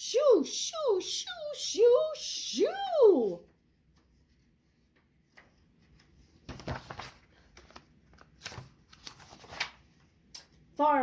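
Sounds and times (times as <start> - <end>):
book pages rustling: 3.5 - 10.3.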